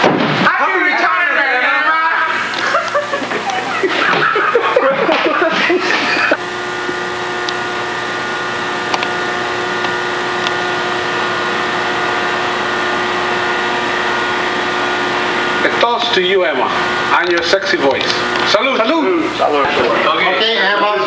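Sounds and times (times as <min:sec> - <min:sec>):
steady hum of fixed tones: 0:00.0 - 0:21.0
people talking: 0:00.4 - 0:06.4, 0:15.6 - 0:21.0
people laughing: 0:02.1 - 0:07.1.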